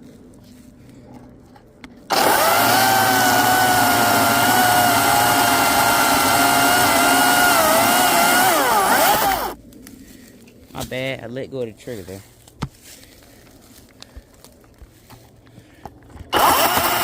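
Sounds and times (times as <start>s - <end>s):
electric chainsaw cutting wood: 2.1s - 9.6s, 16.3s - 17.0s.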